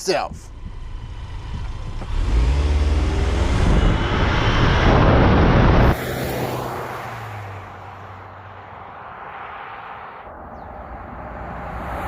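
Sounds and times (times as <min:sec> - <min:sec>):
heavy rushing noise: 0:00.0 - 0:12.0
engine accelerating hard: 0:00.3 - 0:08.4.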